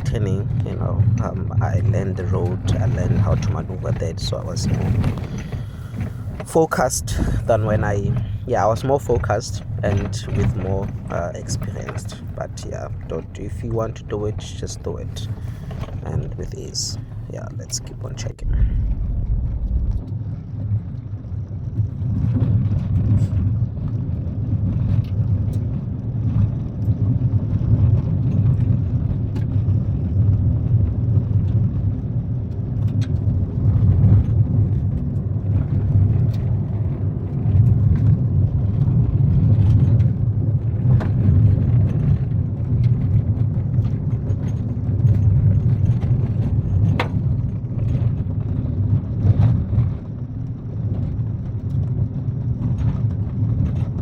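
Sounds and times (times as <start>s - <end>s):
car tyres rumbling on gravel: 0.0s - 54.0s
stones ticking against car: 1.2s - 19.9s.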